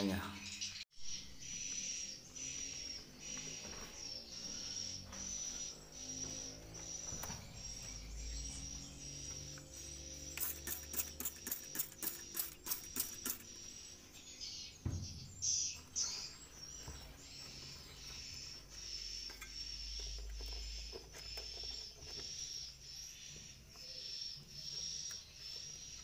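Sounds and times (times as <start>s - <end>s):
swiftlet high chirps: 1.1s - 13.9s
sharp clicks: 10.3s - 13.6s.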